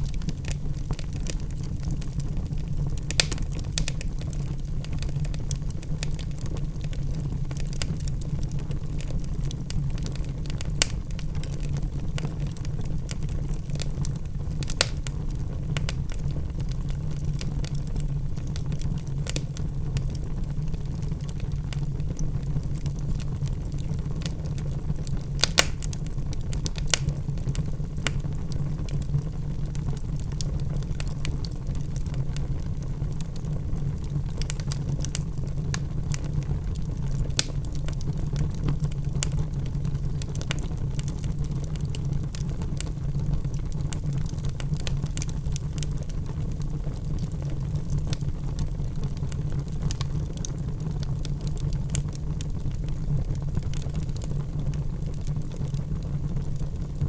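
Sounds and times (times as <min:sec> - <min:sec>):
burning logs crackling and popping: 0:00.0 - 0:57.0
flames low rumble: 0:00.0 - 0:57.0.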